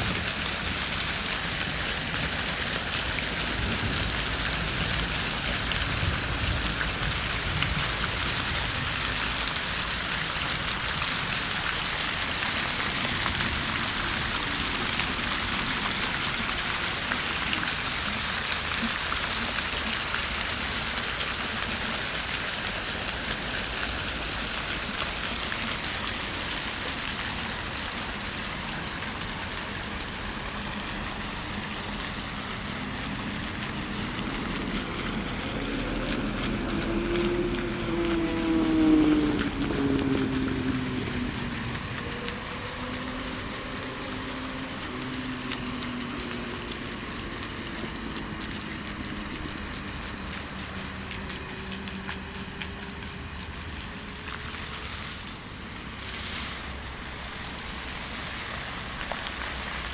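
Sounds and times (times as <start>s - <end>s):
fountain water splashing: 0.0s - 59.9s.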